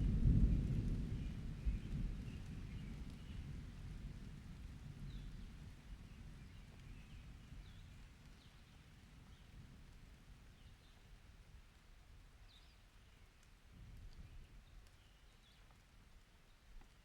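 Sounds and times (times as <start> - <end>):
distant thunder rumbling: 0.0 - 5.9.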